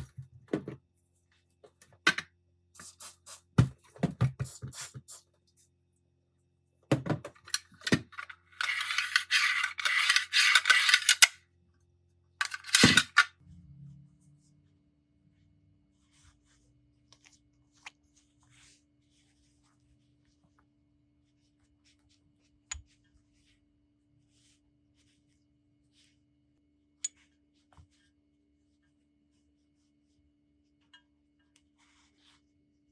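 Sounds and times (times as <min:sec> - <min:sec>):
small metal parts clinking: 0:07.4 - 0:11.3, 0:12.4 - 0:13.3.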